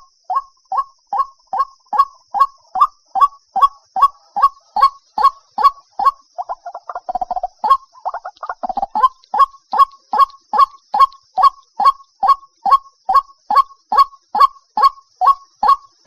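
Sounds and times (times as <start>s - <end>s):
bird calling repeated notes: 0.0s - 16.0s.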